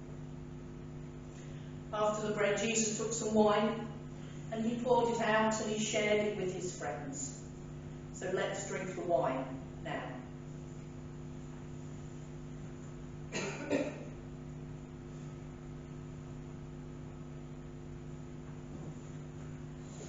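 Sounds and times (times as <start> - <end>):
steady low hum: 0.0 - 20.0
short cough: 13.3 - 14.2.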